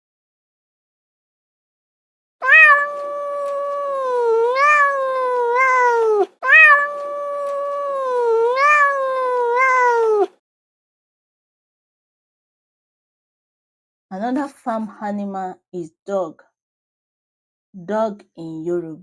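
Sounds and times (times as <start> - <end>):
cat meowing: 2.4 - 10.4.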